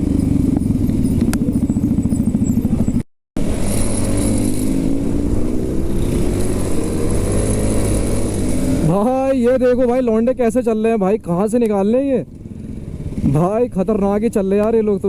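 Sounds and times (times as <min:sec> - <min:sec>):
motorcycle engine accelerating: 0:00.0 - 0:10.1, 0:12.2 - 0:13.6.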